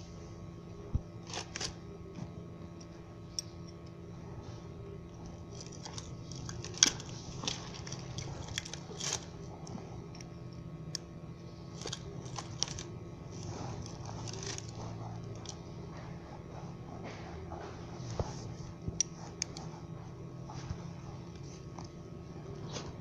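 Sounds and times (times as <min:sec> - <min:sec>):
faint steady hum: 0:00.0 - 0:23.0
small parts and tools clicking: 0:11.7 - 0:12.9.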